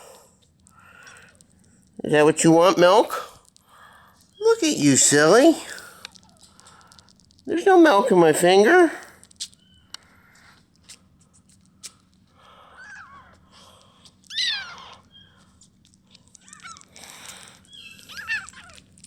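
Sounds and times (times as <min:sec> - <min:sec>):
kitten mewing: 0:12.6 - 0:15.4, 0:16.2 - 0:19.0.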